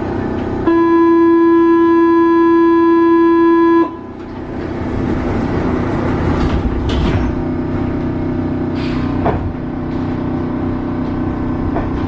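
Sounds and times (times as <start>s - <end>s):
train running noise: 0.0s - 12.0s
train door warning buzzer: 0.6s - 4.3s.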